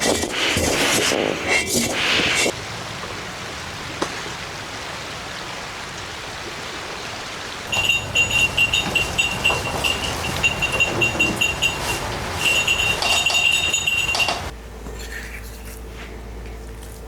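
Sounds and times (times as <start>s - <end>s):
small metal bell ringing: 7.7s - 14.5s.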